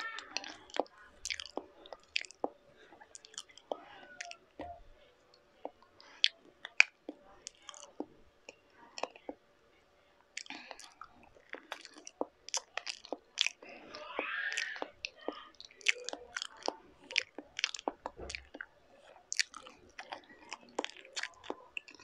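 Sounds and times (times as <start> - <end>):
wet chewing and smacking: 0.0 - 9.5, 10.3 - 22.0.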